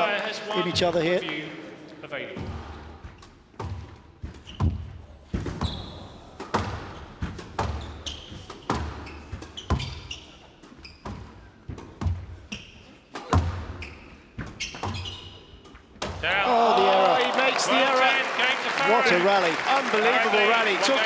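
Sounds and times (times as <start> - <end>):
shoes squeaking on court floor: 3.2 - 16.1
squash ball hits: 4.6 - 10.0, 13.2 - 13.8.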